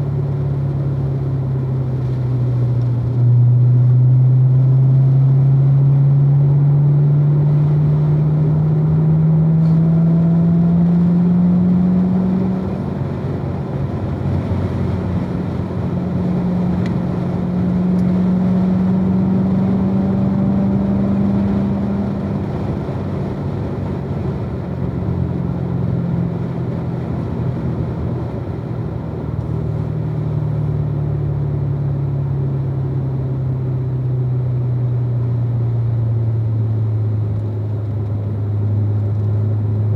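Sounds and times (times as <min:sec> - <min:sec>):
road and wind noise: 0:00.0 - 0:39.9
car engine revving hard: 0:03.4 - 0:28.4.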